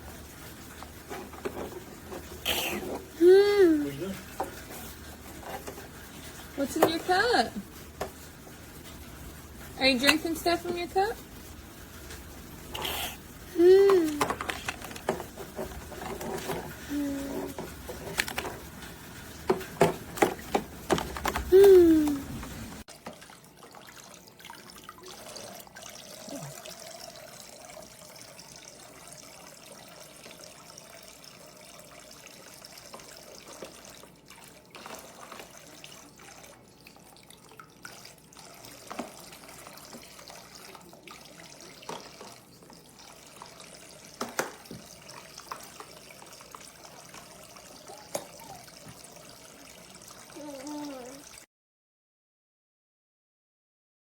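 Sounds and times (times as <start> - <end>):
water trickling into basin: 22.9 - 51.4
small knocks and splashes: 37.8 - 42.8, 44.1 - 49.2.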